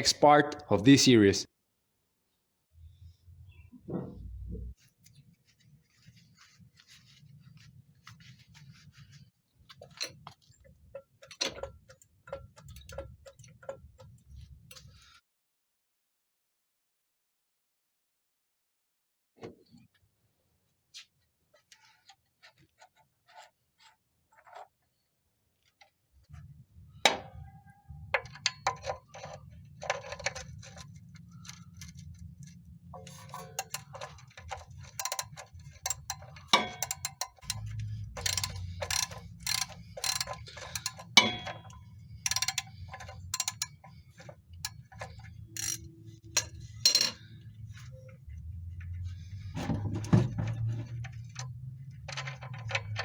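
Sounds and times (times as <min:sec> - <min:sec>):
sharp clicks and knocks: 0:09.8 - 0:14.8, 0:28.2 - 0:47.2.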